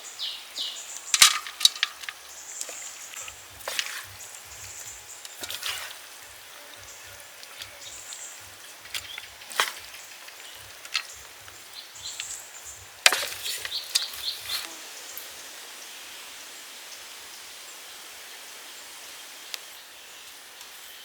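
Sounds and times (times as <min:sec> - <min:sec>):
soft steady hiss: 0:00.0 - 0:21.0
sharp clicks and cracks: 0:00.9 - 0:05.8, 0:07.4 - 0:14.7.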